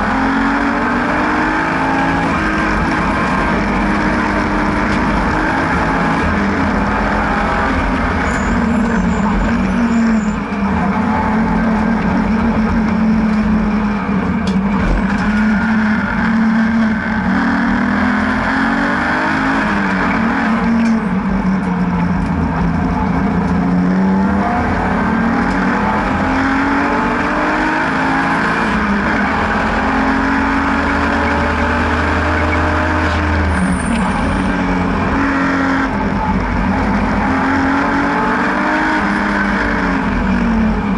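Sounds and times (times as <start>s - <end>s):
car engine accelerating and shifting gears: 0.0s - 40.9s.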